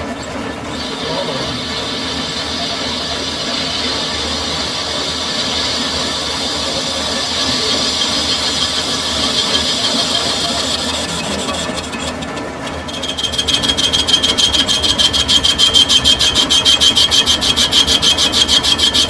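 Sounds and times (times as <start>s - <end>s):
lathe cutting squeal: 0.0s - 19.0s
machine hum: 0.0s - 19.0s.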